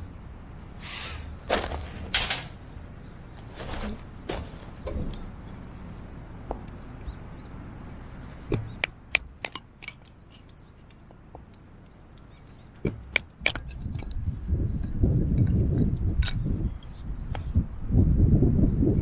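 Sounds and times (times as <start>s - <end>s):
sharp clicks and knocks: 8.5s - 10.0s, 12.8s - 13.6s.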